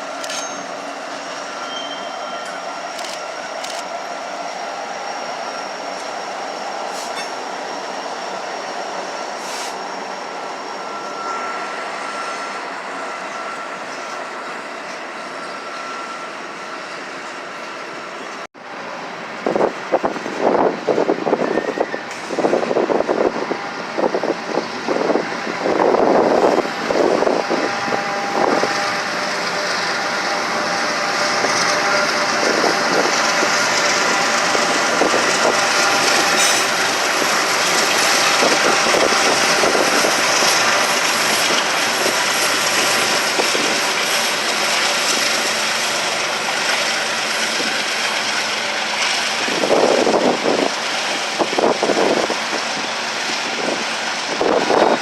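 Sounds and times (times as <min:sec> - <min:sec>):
freight train rumbling on rails: 0:00.0 - 0:55.0.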